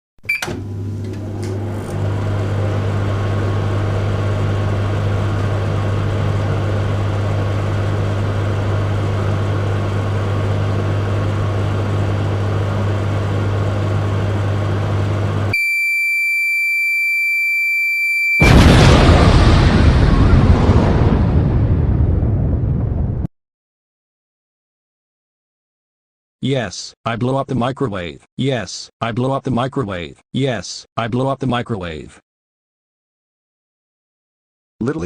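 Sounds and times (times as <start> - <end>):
microwave oven humming: 0.2 - 16.3
long electronic beep: 15.5 - 18.8
loud explosion: 18.4 - 23.3.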